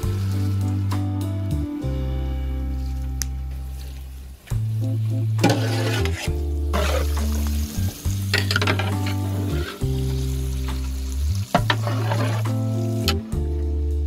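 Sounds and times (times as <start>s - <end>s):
background music with bass line: 0.0s - 14.0s
tomatoes sizzling in oil: 0.0s - 14.0s
ladle scraping metal pot: 5.4s - 7.5s, 8.3s - 9.9s, 11.5s - 12.6s.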